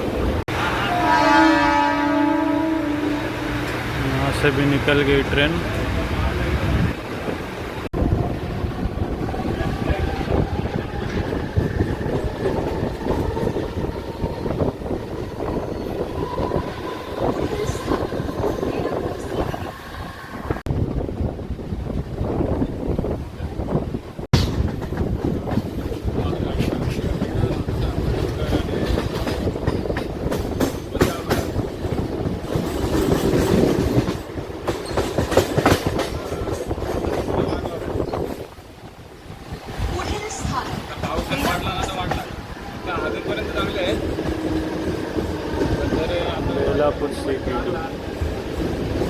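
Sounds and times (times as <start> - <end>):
train rumble: 0.0 - 49.0
clacks over rail joints: 24.3 - 39.0, 40.0 - 49.0
wheel and carriage rattles: 39.7 - 45.0.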